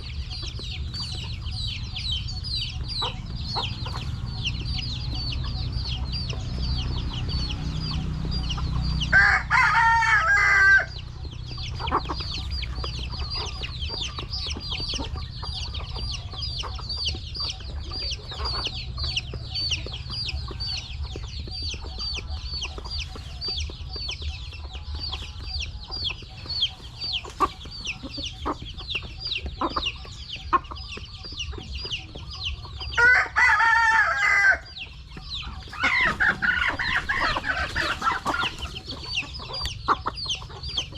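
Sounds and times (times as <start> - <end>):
chicks peeping: 0.0 - 40.9
rooster crowing: 9.1 - 11.0, 33.0 - 34.7.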